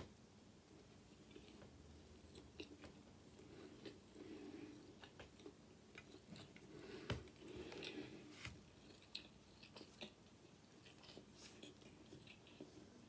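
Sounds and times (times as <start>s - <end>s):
chewing with mouth clicks: 1.1s - 13.0s.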